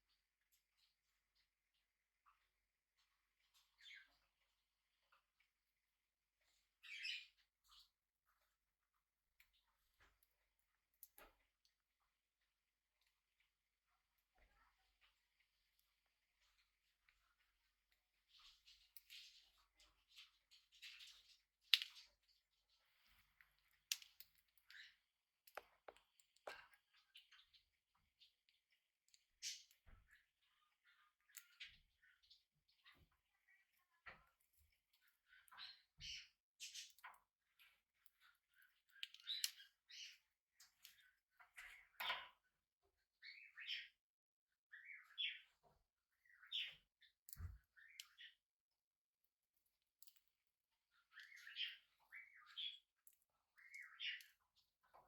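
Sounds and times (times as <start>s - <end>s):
budgerigar clicks and taps: 25.5s - 26.8s.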